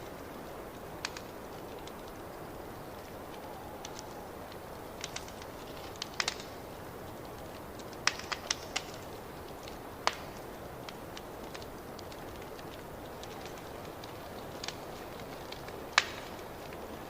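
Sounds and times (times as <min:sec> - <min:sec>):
wood fire crackling: 0:00.0 - 0:17.0
sharp pops of burning wood: 0:00.7 - 0:17.0.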